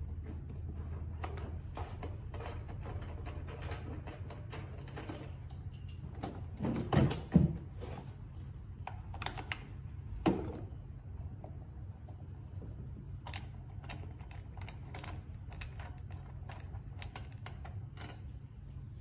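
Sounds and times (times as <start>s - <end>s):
steady low hum: 0.0s - 19.0s
tools clicking and clattering: 0.5s - 7.3s.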